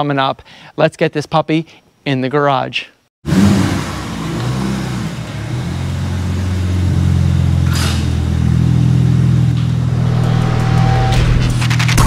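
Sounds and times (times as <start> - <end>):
engine rev: 3.2 - 12.0.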